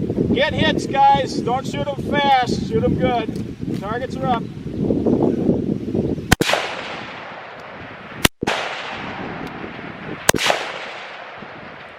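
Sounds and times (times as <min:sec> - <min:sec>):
rifle shots: 0:06.3 - 0:11.9
rolling echo: 0:06.3 - 0:11.9.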